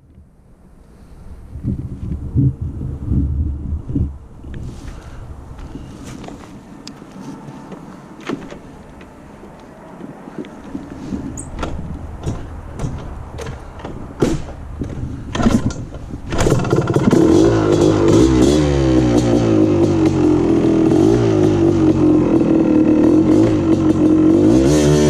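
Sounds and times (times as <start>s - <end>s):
motorcycle engine running: 16.3s - 25.0s.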